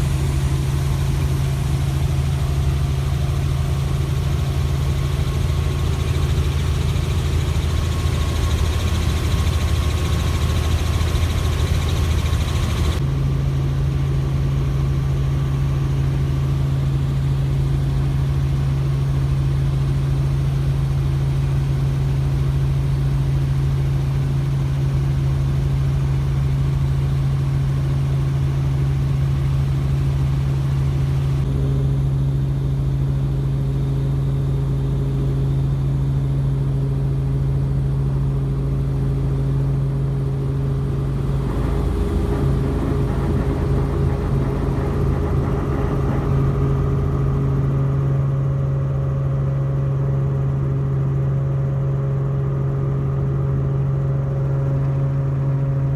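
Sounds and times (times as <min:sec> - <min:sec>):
helicopter droning: 0:00.0 - 0:13.8, 0:37.6 - 0:51.1
higher tone: 0:40.6 - 0:49.1.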